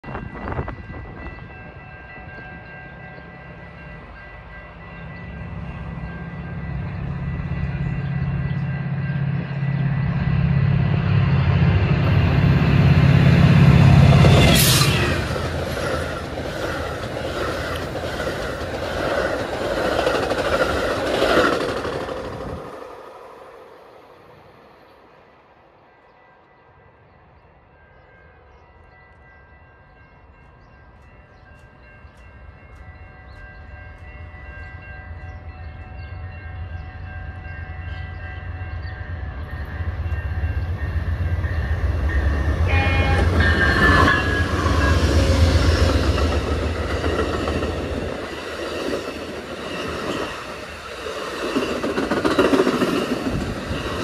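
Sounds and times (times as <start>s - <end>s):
diesel locomotive rumble: 0.1s - 22.8s
train wheels clicking over rail joints: 45.5s - 54.0s.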